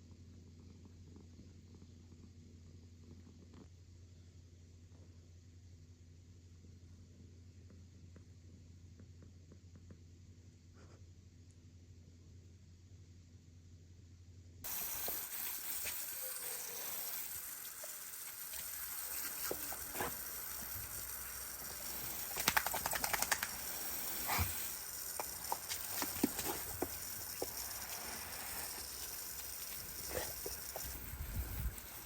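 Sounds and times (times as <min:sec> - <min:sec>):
steady high hiss: 0:14.6 - 0:32.0.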